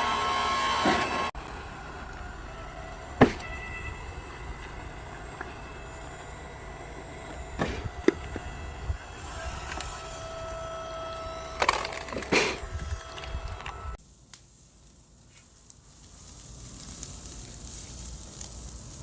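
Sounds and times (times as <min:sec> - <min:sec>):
steady hum: 0:01.3 - 0:14.0
firewood cracking and knocking: 0:03.2 - 0:03.8, 0:07.0 - 0:08.5.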